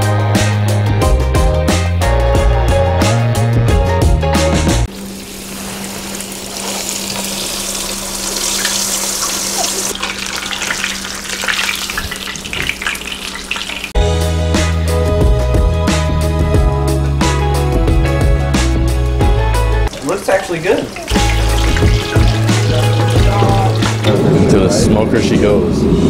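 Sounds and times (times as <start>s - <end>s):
background music: 0.0s - 4.9s, 14.0s - 26.0s
fish deep-frying in hot oil: 4.9s - 14.0s, 19.8s - 24.2s.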